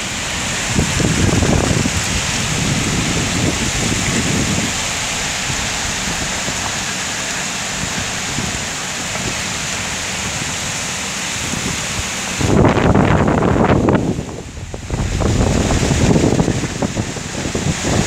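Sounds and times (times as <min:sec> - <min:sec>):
heavy rain hissing: 0:00.0 - 0:18.0
wind buffeting microphone: 0:00.0 - 0:18.0.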